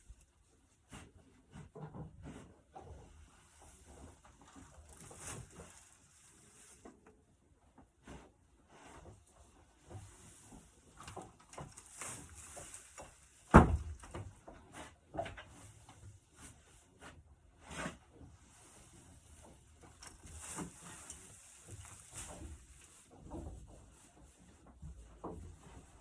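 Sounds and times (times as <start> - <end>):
clunks and knocks: 12.6 - 15.6.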